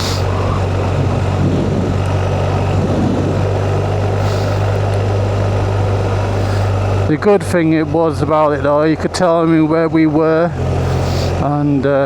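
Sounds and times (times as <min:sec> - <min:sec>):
wind rush: 0:00.0 - 0:07.1
motorcycle engine cruising: 0:00.0 - 0:12.0.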